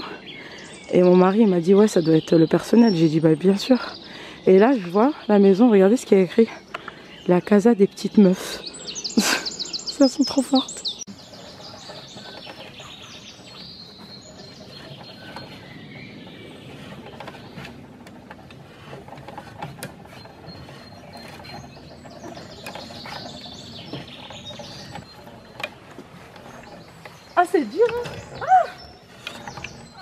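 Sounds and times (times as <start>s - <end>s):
birds singing: 0.0s - 30.0s
mechanism clicking and rattling: 16.2s - 28.4s.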